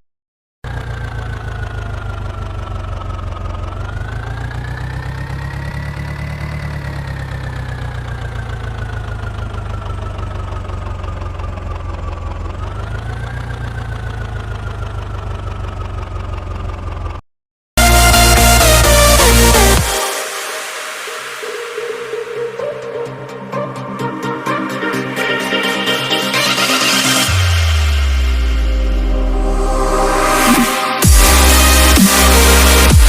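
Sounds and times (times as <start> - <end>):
tractor engine running: 0.6 - 17.2.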